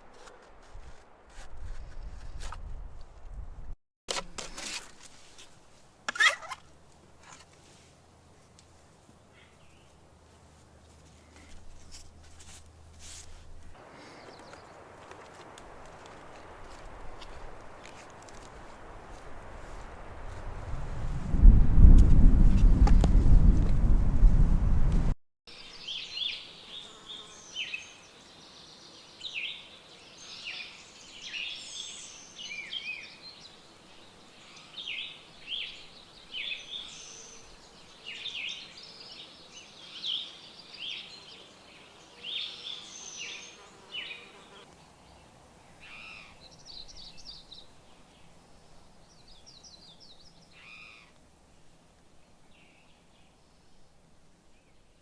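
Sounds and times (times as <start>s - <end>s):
wild birds chirping and trilling: 25.5s - 51.2s.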